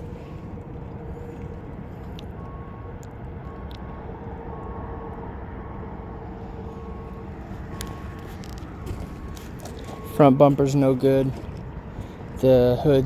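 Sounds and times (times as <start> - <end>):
low outdoor rumble: 0.0 - 13.0
faint high tone beeping: 2.2 - 11.3.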